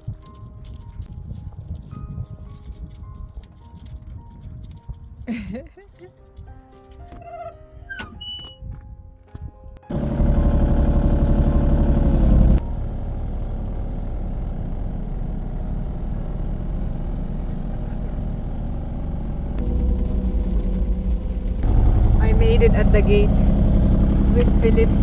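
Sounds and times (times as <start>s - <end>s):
vehicle engine running: 9.9s - 25.0s.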